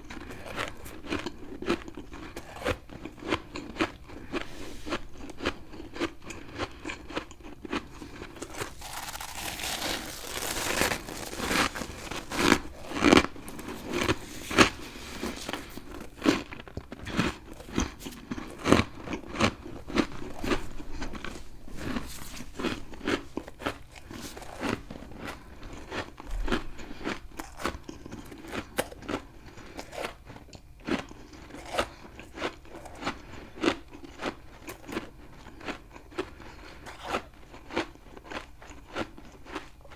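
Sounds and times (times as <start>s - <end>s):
biting and chewing crunchy frost: 0.0s - 39.9s.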